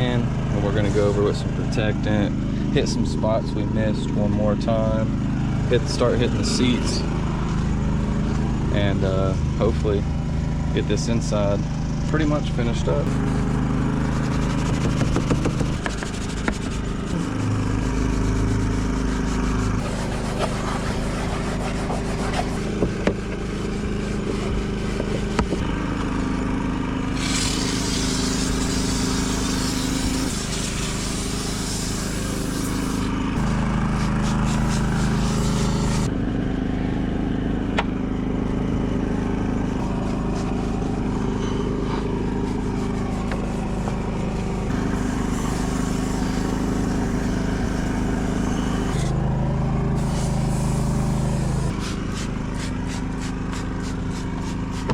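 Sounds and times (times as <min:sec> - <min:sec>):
machine motor hum: 0:00.0 - 0:54.9
loud hiss: 0:27.1 - 0:36.1, 0:44.7 - 0:49.1, 0:50.0 - 0:54.9.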